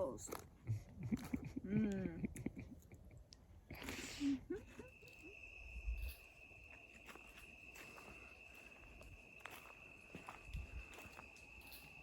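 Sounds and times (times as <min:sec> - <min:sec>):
insects droning: 0:01.0 - 0:12.0.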